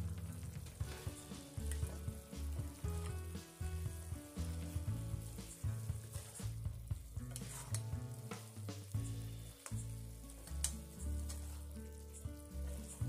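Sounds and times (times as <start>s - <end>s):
chicken sizzling in a pan: 0.0s - 13.0s
metal spatula scraping a pan: 4.6s - 6.6s, 7.2s - 8.0s, 9.0s - 13.0s.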